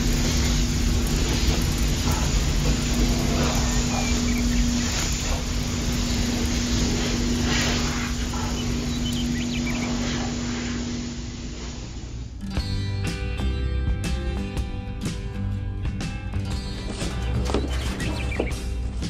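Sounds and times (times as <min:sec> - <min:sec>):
water spraying and splashing: 0:00.0 - 0:12.4, 0:16.5 - 0:19.0
electric water pump humming: 0:00.0 - 0:12.6, 0:16.4 - 0:19.0.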